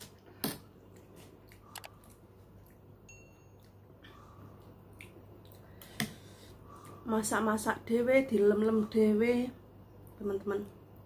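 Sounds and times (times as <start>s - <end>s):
faint chewing: 0.8s - 3.0s, 3.6s - 7.0s.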